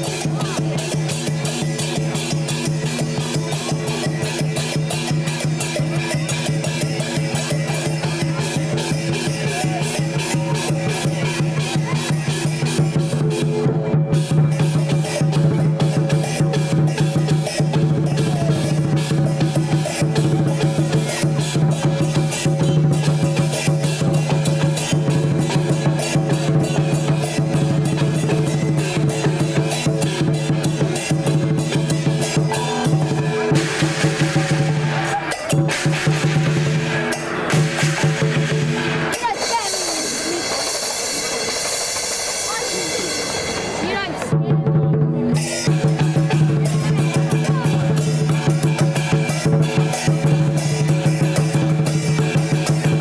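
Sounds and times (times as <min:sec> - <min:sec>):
gongs and cymbals crashing: 0:00.0 - 0:44.4, 0:45.3 - 0:53.0
big drum beaten fast: 0:00.0 - 0:53.0
gongs ringing: 0:26.5 - 0:44.3.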